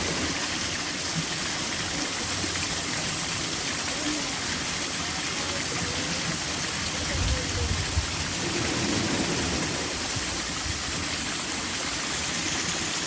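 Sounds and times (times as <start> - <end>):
flowing water rushing: 0.0 - 13.0
low bumps: 7.8 - 11.2.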